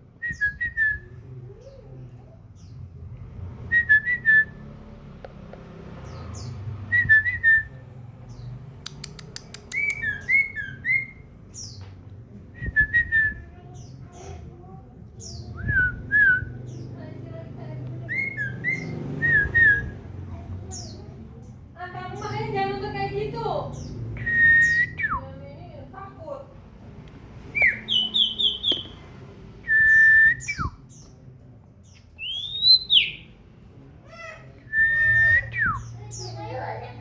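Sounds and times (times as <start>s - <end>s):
bird whistling song: 0.2s - 1.1s, 9.6s - 11.8s, 18.1s - 20.0s, 23.8s - 25.2s, 27.5s - 29.0s, 29.6s - 31.1s, 32.2s - 33.3s.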